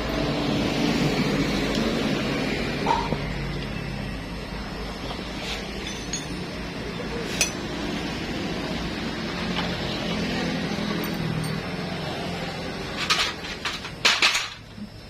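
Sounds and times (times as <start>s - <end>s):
metallic clinks of tools: 5.7s - 6.6s, 11.0s - 11.7s.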